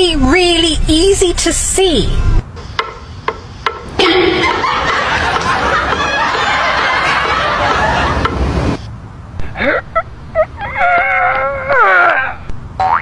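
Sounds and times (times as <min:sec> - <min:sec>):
loud laughter: 0:03.9 - 0:08.8, 0:09.4 - 0:12.4.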